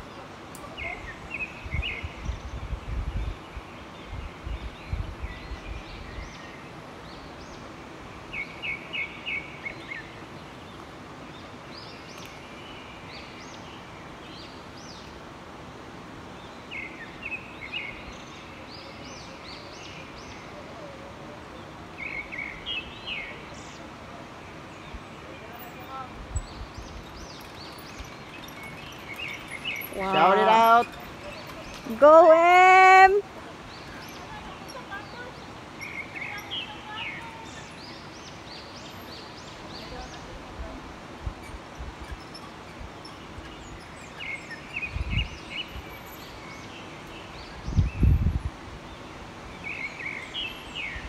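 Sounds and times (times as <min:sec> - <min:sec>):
outdoor hiss: 0:00.0 - 0:51.0
wind buffeting microphone: 0:01.0 - 0:06.4, 0:39.9 - 0:46.0, 0:47.3 - 0:49.5.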